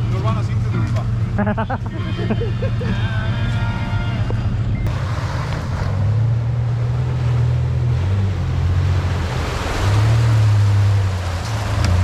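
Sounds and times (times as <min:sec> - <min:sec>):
engine pulling at low revs: 0:04.2 - 0:12.0
rushing water and rain: 0:04.9 - 0:12.0.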